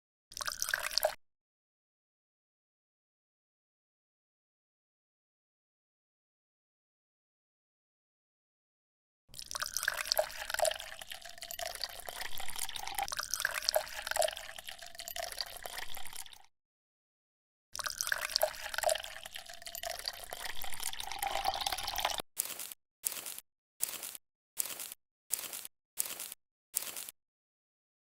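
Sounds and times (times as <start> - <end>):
water trickling and dripping: 9.3 - 16.5, 17.8 - 22.2.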